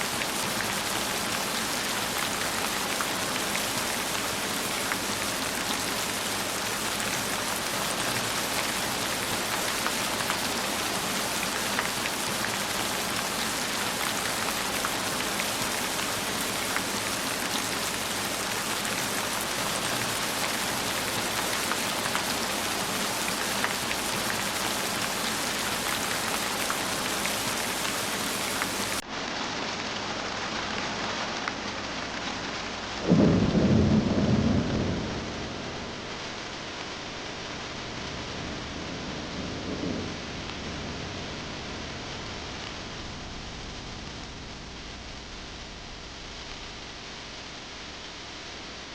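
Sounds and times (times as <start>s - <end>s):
heavy rain: 0.0s - 48.9s
thunder clap rumbling: 33.0s - 36.4s, 38.1s - 41.4s.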